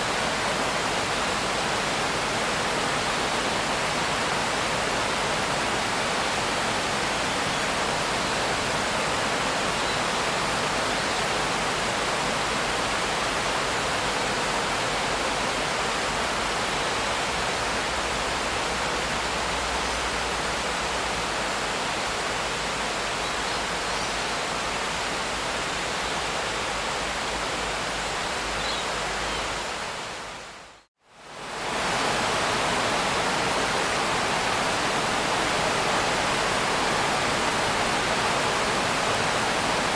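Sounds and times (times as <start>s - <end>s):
heavy rain hiss: 31.2s - 39.9s.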